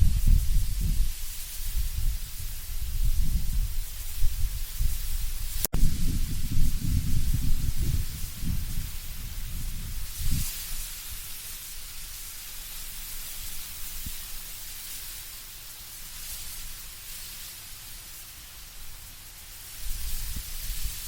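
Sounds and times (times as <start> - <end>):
low wind rumble: 0.0 - 10.9
leaves rustling in wind: 0.0 - 21.0.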